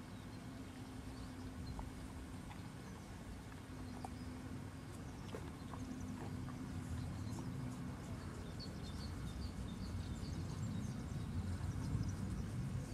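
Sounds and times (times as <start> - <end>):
steady low rumble: 0.0 - 12.9
songbird high chirps: 3.8 - 12.9.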